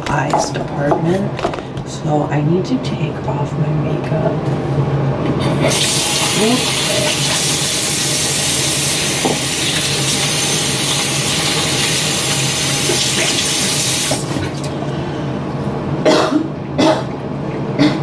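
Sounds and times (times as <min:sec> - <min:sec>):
sink tap running: 0:05.6 - 0:14.8.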